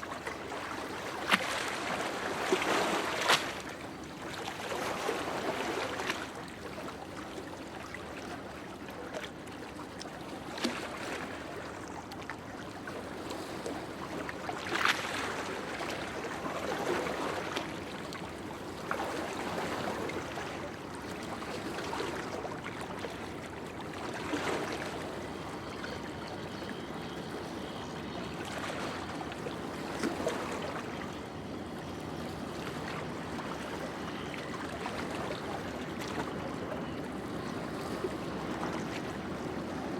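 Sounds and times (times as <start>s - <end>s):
sea surf washing on shore: 0.0s - 6.5s.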